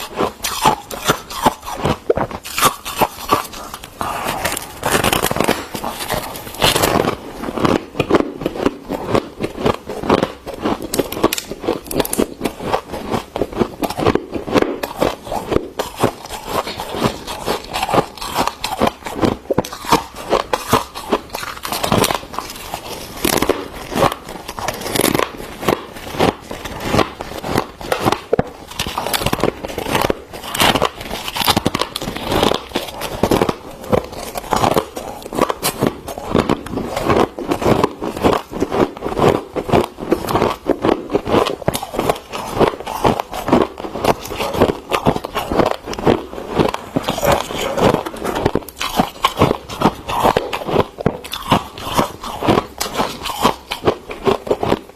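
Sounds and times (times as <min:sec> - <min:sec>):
frost scraping and crunching: 0:00.0 - 0:54.9.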